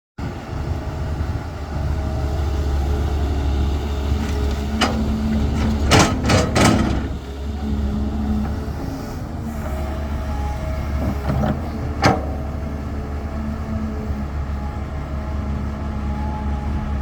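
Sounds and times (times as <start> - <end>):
excavator diesel engine running: 0.2 - 17.0
metal clanks: 4.2 - 7.2.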